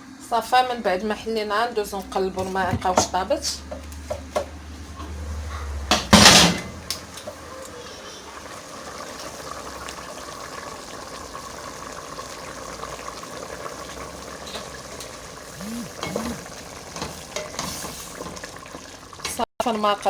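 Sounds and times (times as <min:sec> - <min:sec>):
cooking pot clattering: 0:02.4 - 0:03.2
broth simmering: 0:07.1 - 0:19.2.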